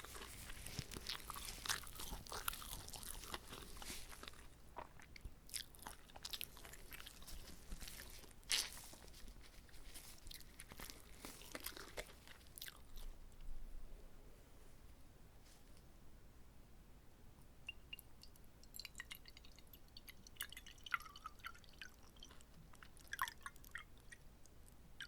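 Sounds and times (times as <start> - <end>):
chewing and biting crunches: 0.0 - 13.2.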